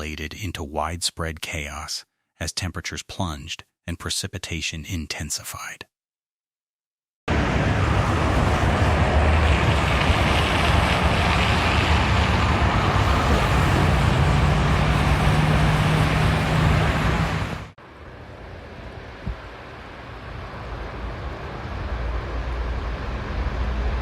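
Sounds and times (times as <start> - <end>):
road and wind noise: 7.3 - 24.0
vehicle engine hum: 7.3 - 24.0.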